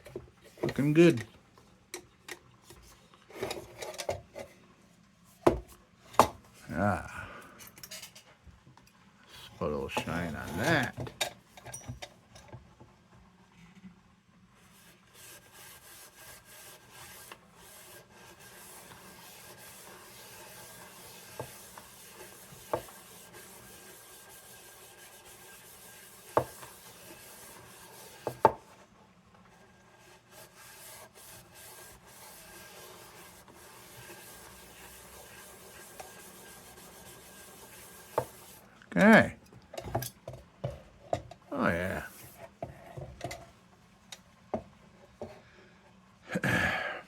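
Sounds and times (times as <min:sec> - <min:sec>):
rubbing and scrubbing metal: 0:14.7 - 0:28.5, 0:29.6 - 0:38.6.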